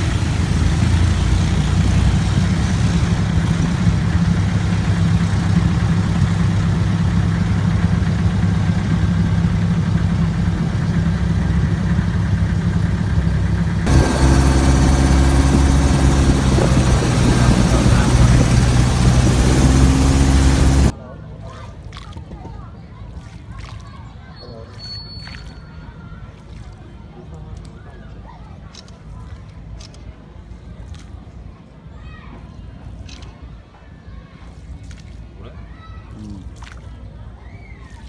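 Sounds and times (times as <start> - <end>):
motorboat engine running: 0.0 - 20.9.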